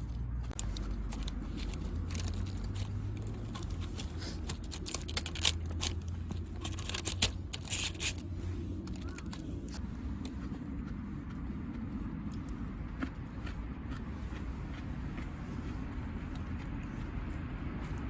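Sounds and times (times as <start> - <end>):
scraping and rustling: 0.0 - 9.9.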